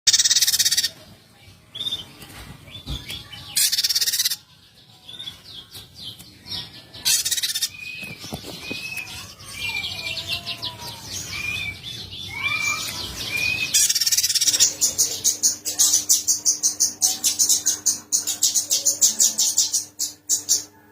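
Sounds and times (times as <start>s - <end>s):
harsh buzzy bird calls: 0.1s - 1.0s, 3.5s - 4.5s, 6.1s - 20.9s.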